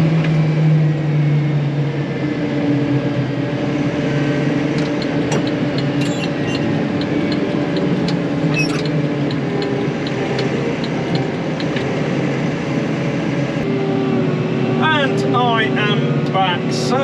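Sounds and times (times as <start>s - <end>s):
vehicle engine running: 0.0s - 17.0s
light ticking: 4.8s - 11.9s.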